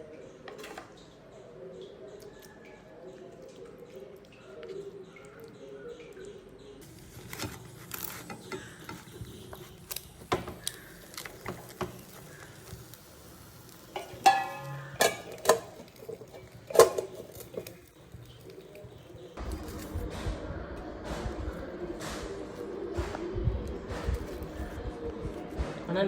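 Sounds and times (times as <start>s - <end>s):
cookware taps and scrapes: 13.9s - 17.8s.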